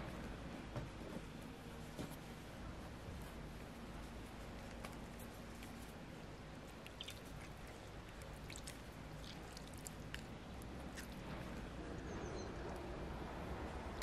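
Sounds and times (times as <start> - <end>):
person chewing bread: 6.6 - 11.7.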